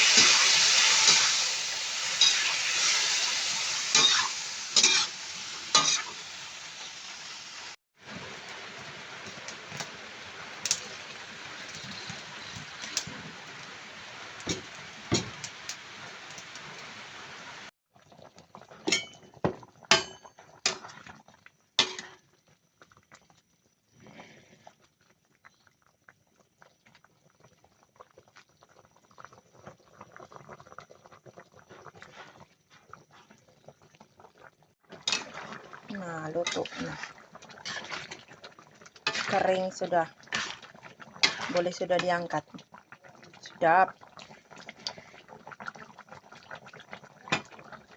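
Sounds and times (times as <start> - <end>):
fish sizzling in oil: 0.0 - 17.7, 26.1 - 47.9
stirring knocks and scrapes: 14.4 - 15.5, 34.9 - 39.6, 40.2 - 42.2.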